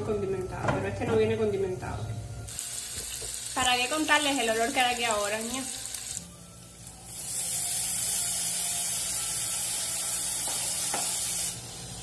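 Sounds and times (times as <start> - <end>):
vegetables sizzling in hot oil: 2.5 - 12.0.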